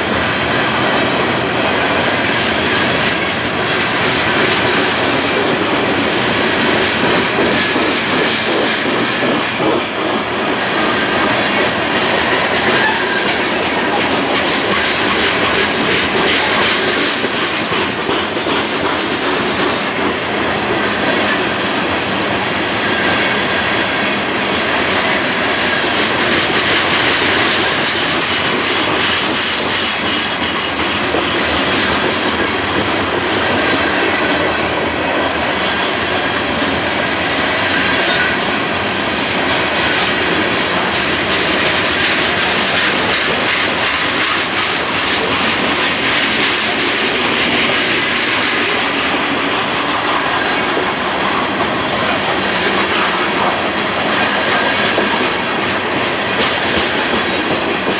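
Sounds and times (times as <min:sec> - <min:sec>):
train wheels clattering on track: 0:00.0 - 0:57.9
train wheel squeal: 0:10.6 - 0:20.0, 0:24.8 - 0:34.6, 0:35.6 - 0:57.9.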